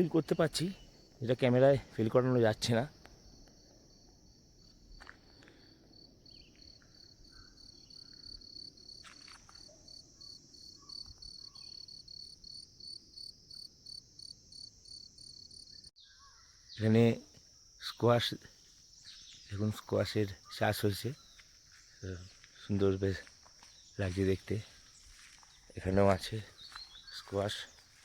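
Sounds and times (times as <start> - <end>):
insect chirping trill: 0.0 - 28.0.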